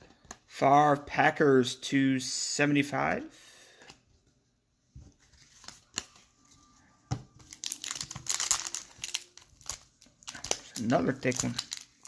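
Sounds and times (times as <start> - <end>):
foil wrapper crinkling: 7.4 - 12.0.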